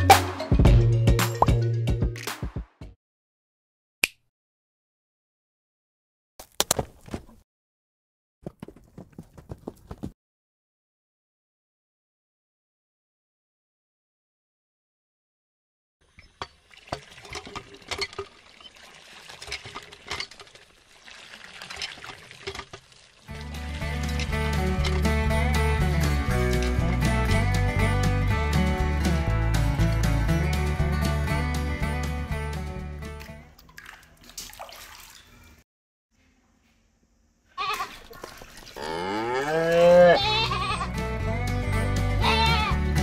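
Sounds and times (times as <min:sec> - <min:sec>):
water pouring and splashing: 0:16.1 - 0:25.0, 0:33.2 - 0:35.6, 0:37.7 - 0:38.9
sheep-like bleat: 0:37.5 - 0:38.0, 0:38.8 - 0:41.0, 0:42.2 - 0:42.8.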